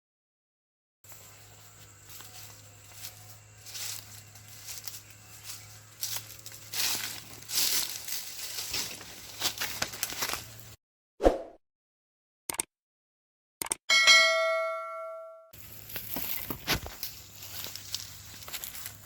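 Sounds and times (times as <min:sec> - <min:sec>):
rustling and handling noises: 0:02.2 - 0:10.8, 0:15.6 - 0:19.0.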